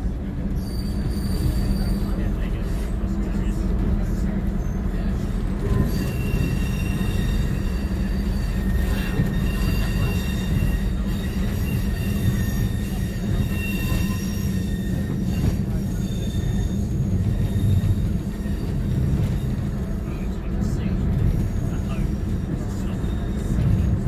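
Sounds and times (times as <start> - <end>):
train engine and wheels droning: 0.0 - 24.0
high-pitched wheel squeal: 0.6 - 2.3, 5.7 - 19.6.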